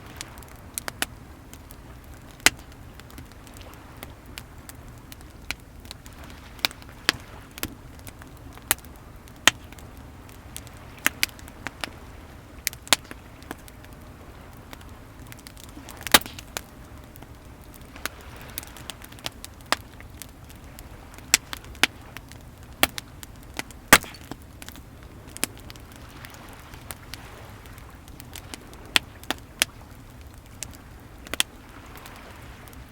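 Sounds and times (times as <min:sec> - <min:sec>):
bonfire crackling and popping: 0:00.0 - 0:32.9
waves washing: 0:00.0 - 0:32.9.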